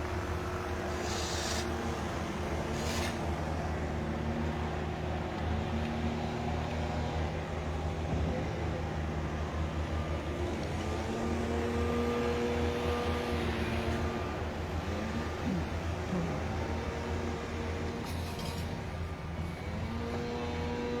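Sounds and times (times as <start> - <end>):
machinery engine droning: 0.0 - 21.0
short hisses: 1.0 - 1.8.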